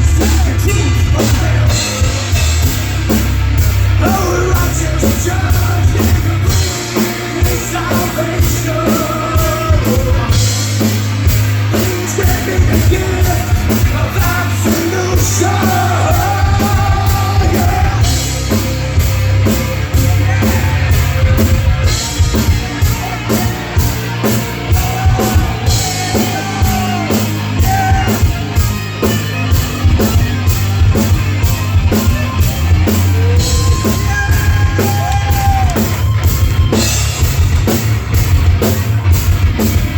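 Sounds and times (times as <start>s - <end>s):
fast drum beat: 0.0s - 39.9s
live heavy metal band: 0.0s - 39.9s
sung and shouted vocals: 4.0s - 10.6s, 11.8s - 18.4s, 19.9s - 21.8s, 24.6s - 28.4s.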